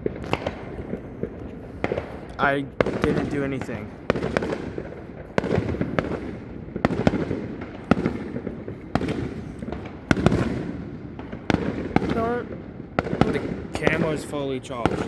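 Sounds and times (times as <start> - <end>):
fireworks sharp bangs: 0.0 - 15.0
rumble of explosions: 0.0 - 15.0.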